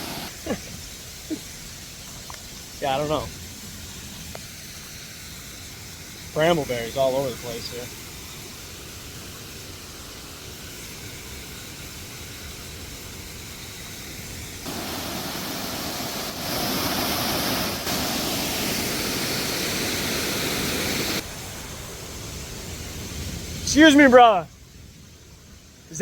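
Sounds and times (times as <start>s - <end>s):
waterfall roaring: 0.0s - 1.7s, 14.6s - 24.3s.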